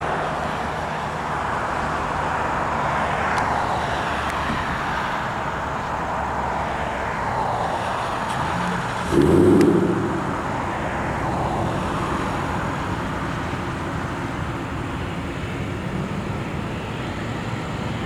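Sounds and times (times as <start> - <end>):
road traffic: 0.0 - 18.0
jet noise: 9.0 - 12.0
low hum: 9.1 - 11.8.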